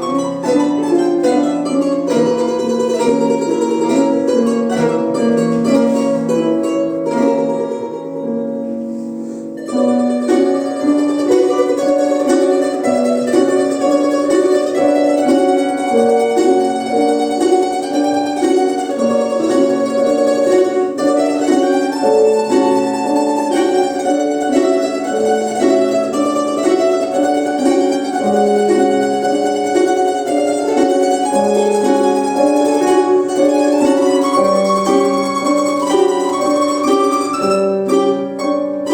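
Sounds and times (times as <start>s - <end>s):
plucked string quartet playing: 0.0s - 38.9s.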